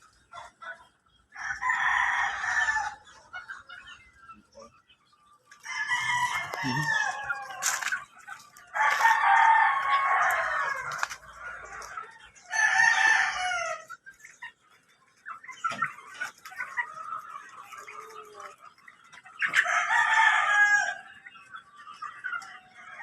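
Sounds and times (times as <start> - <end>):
chicken clucks: 0.0 - 23.0
roosters crowing: 1.3 - 3.2, 5.5 - 14.0, 19.4 - 21.2.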